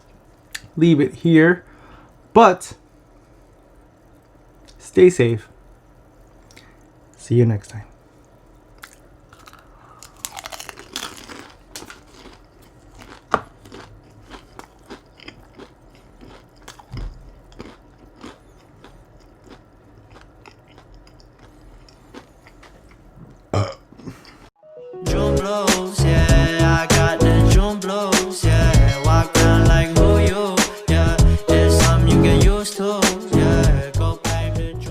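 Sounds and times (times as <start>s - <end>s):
chewing and crunching food: 8.7s - 24.5s
music: 24.6s - 34.9s.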